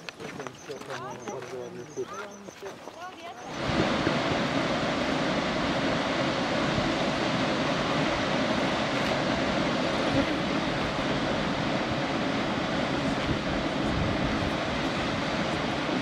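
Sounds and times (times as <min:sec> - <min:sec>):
waterfall roaring: 0:03.4 - 0:16.0.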